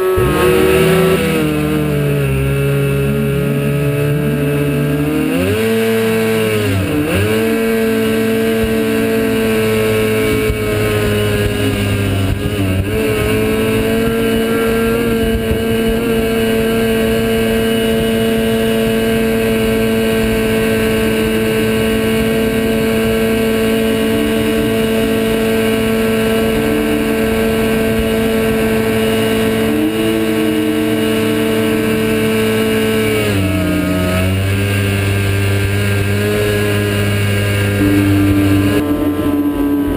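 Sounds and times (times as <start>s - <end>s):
jet dinghy engine at high revs: 0.0s - 39.9s.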